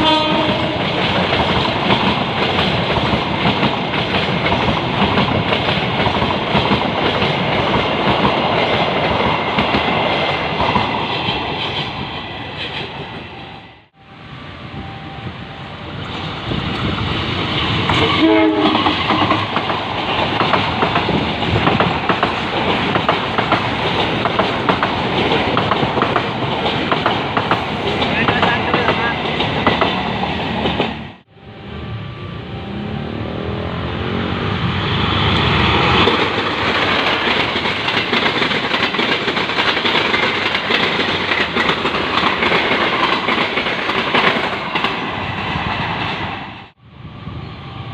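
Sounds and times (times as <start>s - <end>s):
train horn: 0.0s - 0.9s, 17.9s - 19.0s
train passing with wheel clacking: 0.0s - 47.9s.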